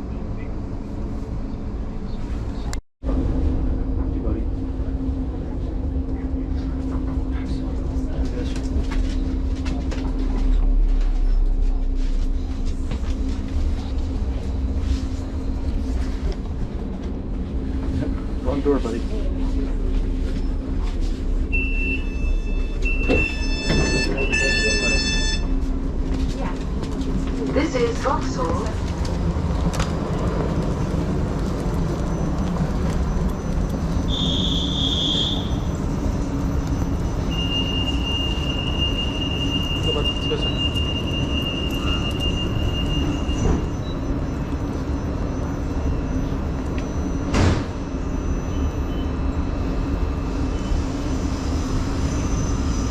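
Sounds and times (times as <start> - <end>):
train rumbling on rails: 0.0 - 52.9
two-part high beep: 21.6 - 25.5.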